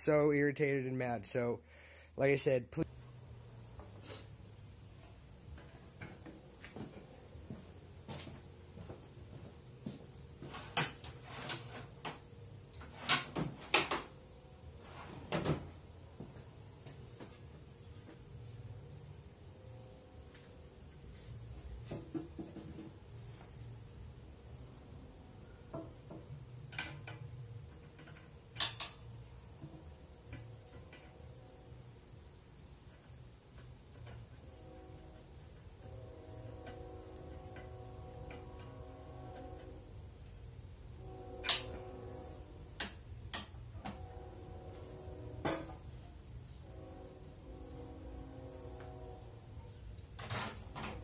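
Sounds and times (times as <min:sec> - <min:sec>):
low steady hum: 0:00.0 - 0:51.0
hard objects knocking and clunking: 0:21.9 - 0:23.0.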